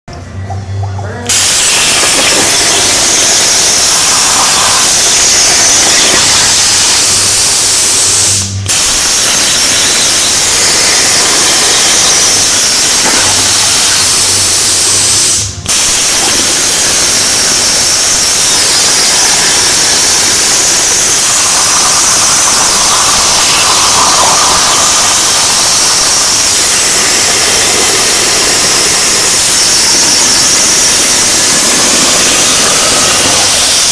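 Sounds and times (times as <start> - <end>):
plasma torch arc hissing: 1.3 - 33.9.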